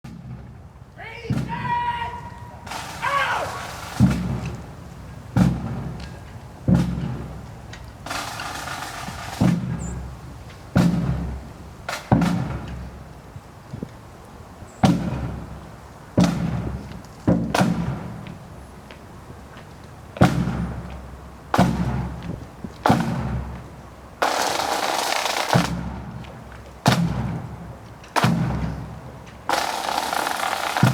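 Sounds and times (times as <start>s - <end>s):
slow heavy drum strokes: 1.3s - 13.0s, 14.8s - 18.4s, 20.2s - 30.9s.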